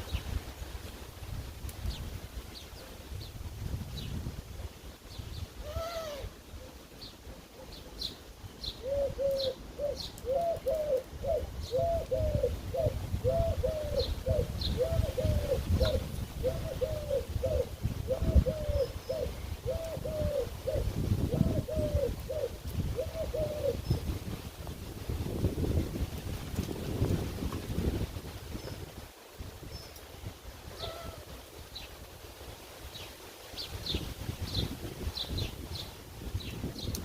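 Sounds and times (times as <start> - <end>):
pigeon cooing: 5.6 - 6.8, 8.8 - 24.0, 30.7 - 31.3
sparrows chirping: 7.0 - 10.9.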